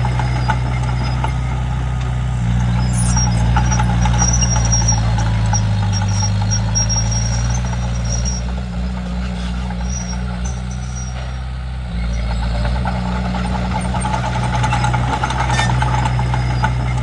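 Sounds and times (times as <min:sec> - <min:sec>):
bulldozer diesel engine running: 0:00.0 - 0:17.0
short high squeaks: 0:02.7 - 0:11.4, 0:13.8 - 0:17.0.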